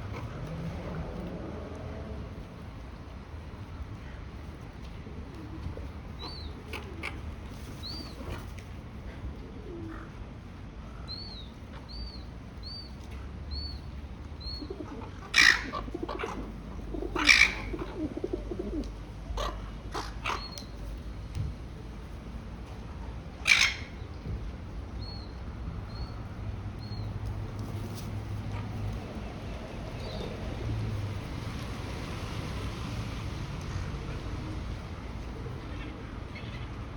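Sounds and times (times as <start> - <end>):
pigeons cooing: 9.4 - 10.2, 14.5 - 20.6.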